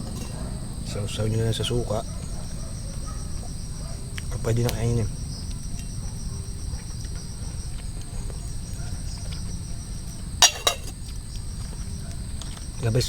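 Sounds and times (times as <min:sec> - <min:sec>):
insects chirring: 0:00.0 - 0:13.0
sharp clinks: 0:10.4 - 0:10.9.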